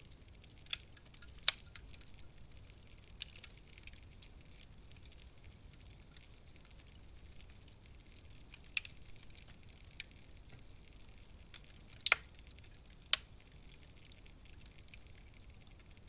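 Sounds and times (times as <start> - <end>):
fireplace fire hissing: 0.0 - 16.0
sharp pops of fire: 11.9 - 12.4.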